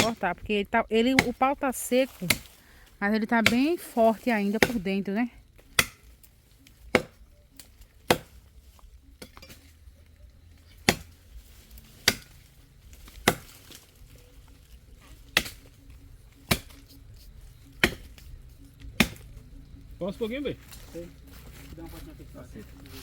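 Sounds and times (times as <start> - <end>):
axe chopping log: 0.0 - 0.2, 1.1 - 1.4, 2.1 - 2.6, 3.4 - 3.7, 4.6 - 4.9, 5.6 - 8.5, 10.6 - 13.8, 15.1 - 17.0, 17.7 - 19.4.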